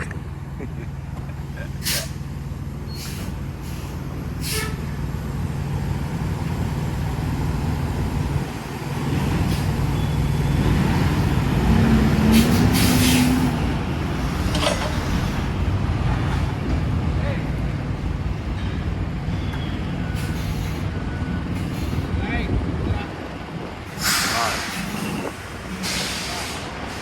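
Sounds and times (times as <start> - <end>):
air hissing: 24.0 - 25.2.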